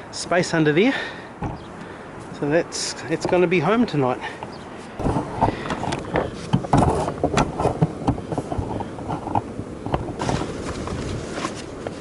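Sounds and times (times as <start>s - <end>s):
tarp rustling and crackling: 10.1s - 12.0s.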